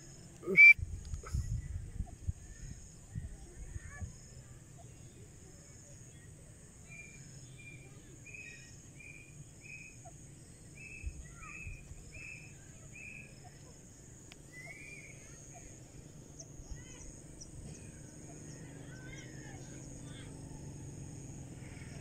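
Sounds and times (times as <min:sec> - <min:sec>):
francolin calling: 0:00.4 - 0:00.8, 0:06.8 - 0:20.1.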